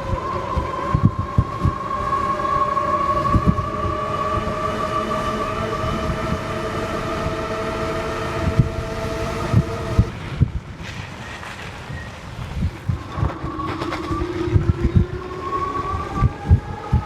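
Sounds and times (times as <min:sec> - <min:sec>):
electric motor whine: 0:00.0 - 0:10.2.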